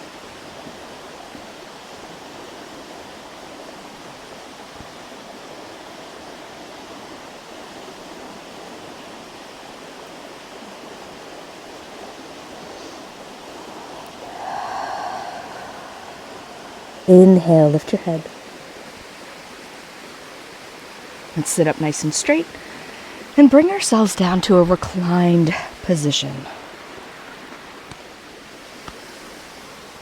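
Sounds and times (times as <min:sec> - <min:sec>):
river rushing: 0:13.7 - 0:18.4.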